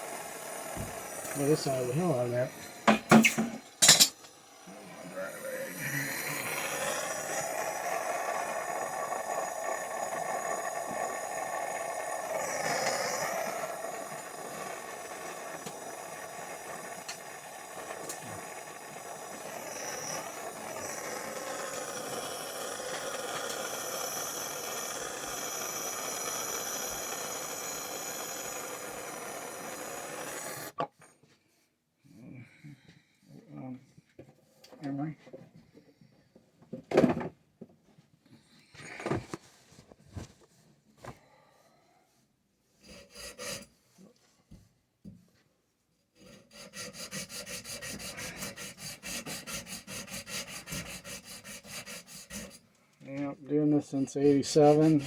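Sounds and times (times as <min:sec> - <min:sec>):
torch flame hissing: 0:00.0 - 0:30.9, 0:46.2 - 0:52.7, 0:53.5 - 0:55.0.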